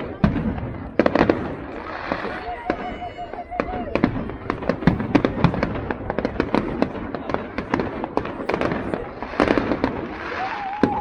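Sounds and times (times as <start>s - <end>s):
fireworks bangs: 0.0s - 11.0s
fireworks hissing crackle: 0.0s - 11.0s
fireworks wavering whistle: 0.1s - 5.6s, 8.5s - 11.0s.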